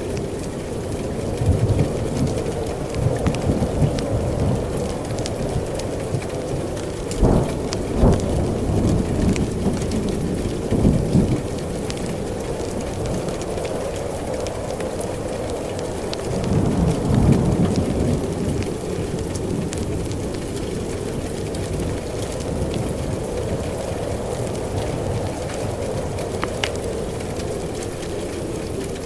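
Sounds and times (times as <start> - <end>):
heavy rain: 0.0 - 29.0
thunder rumbling and cracking: 0.0 - 29.0.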